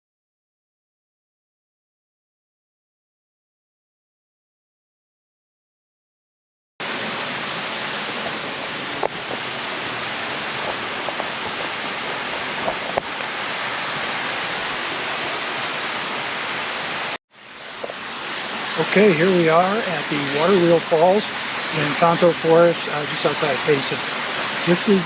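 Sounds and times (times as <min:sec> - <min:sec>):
waterfall rushing: 0:06.8 - 0:25.0.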